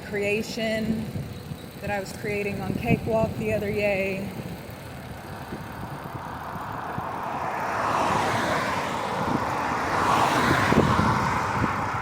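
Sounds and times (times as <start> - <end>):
vehicle passing on road: 0.6 - 12.0.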